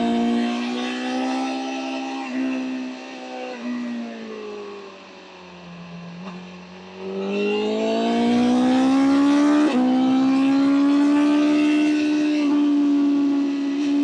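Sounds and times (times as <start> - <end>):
motorcycle engine accelerating: 7.0 - 14.0.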